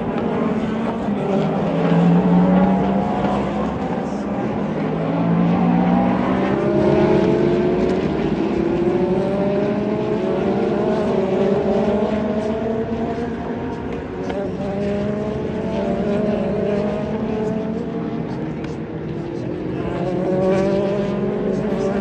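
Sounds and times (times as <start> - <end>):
race car engines accelerating: 0.0 - 22.0.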